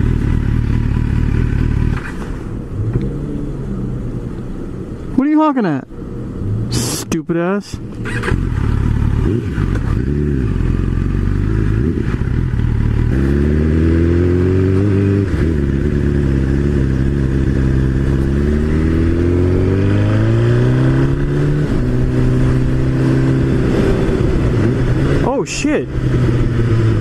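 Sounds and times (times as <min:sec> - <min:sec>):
motorcycle engine running: 0:00.0 - 0:02.1, 0:07.8 - 0:19.9.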